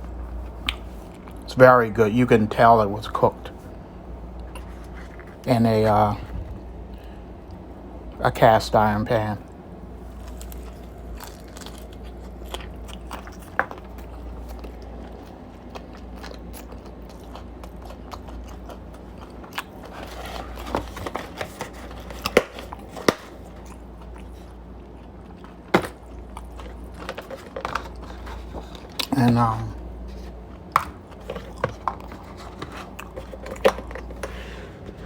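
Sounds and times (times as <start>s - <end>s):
low steady hum: 0.0s - 35.0s
person chewing crispy chicken: 10.0s - 35.0s.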